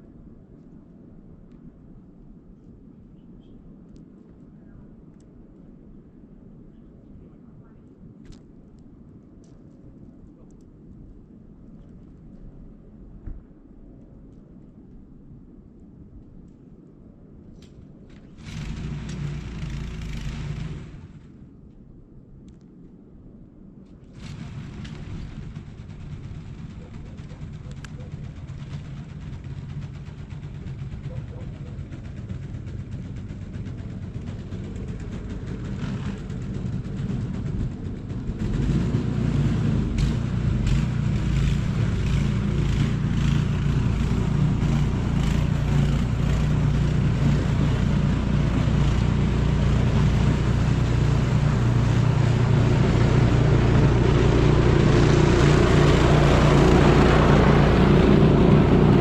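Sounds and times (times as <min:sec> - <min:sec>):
engine humming: 0:18.1 - 0:21.4, 0:24.1 - 0:59.0.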